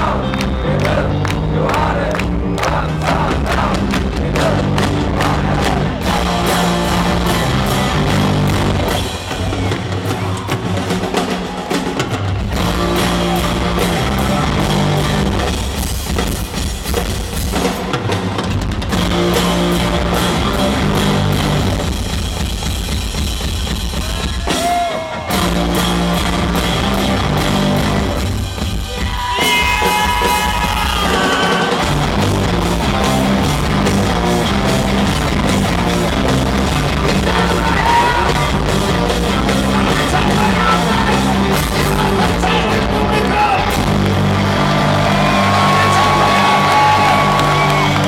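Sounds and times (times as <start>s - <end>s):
bass line: 0.0s - 9.8s, 12.5s - 16.6s, 18.9s - 22.7s, 25.3s - 29.1s, 31.8s - 48.0s
electric guitar: 0.0s - 9.8s, 18.9s - 22.2s, 24.3s - 48.0s
drums: 0.0s - 48.0s
person singing: 37.0s - 43.6s.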